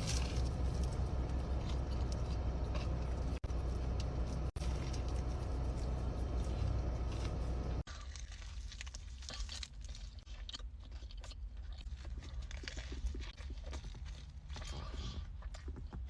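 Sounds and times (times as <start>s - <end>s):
low rumbling noise: 0.0s - 7.9s
crunchy chewing of crisp food: 0.0s - 16.0s.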